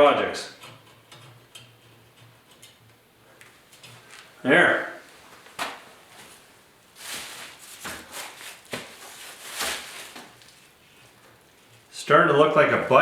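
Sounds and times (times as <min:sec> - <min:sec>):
short rustles: 0:05.0 - 0:11.9.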